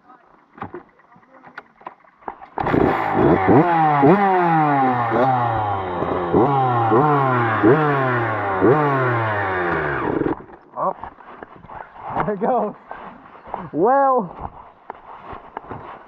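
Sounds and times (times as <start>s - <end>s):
dirt bike engine revving: 2.1s - 13.8s.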